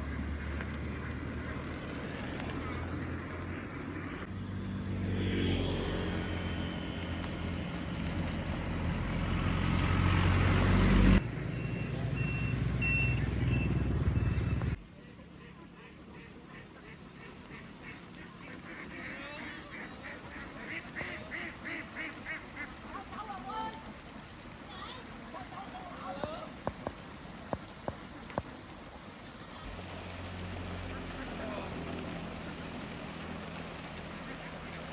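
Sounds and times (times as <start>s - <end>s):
ducks quacking: 0.0s - 4.3s, 12.9s - 23.9s, 30.6s - 33.2s, 33.8s - 34.9s
truck engine running: 6.1s - 14.8s
short high beeps: 11.5s - 14.8s.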